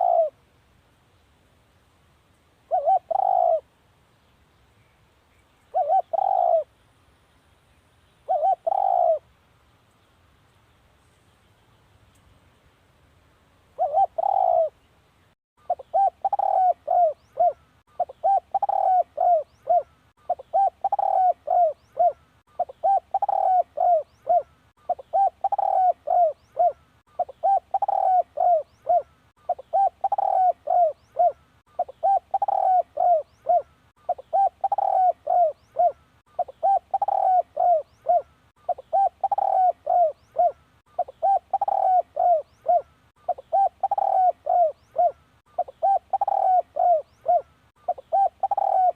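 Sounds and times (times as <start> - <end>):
dove cooing: 0.0 - 0.4, 2.7 - 3.7, 5.7 - 6.7, 8.2 - 9.3, 13.8 - 14.8, 15.6 - 48.9.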